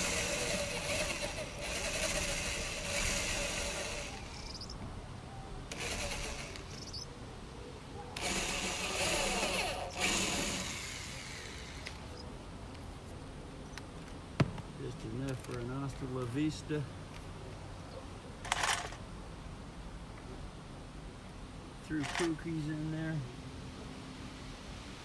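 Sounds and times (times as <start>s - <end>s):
power drill cutting into wood: 0.0s - 4.8s, 5.7s - 7.0s, 8.2s - 12.0s.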